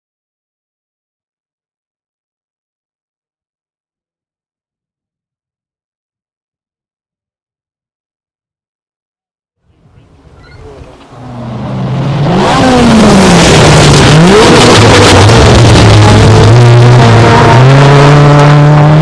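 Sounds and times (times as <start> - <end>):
rally car engine at speed: 10.2 - 19.0.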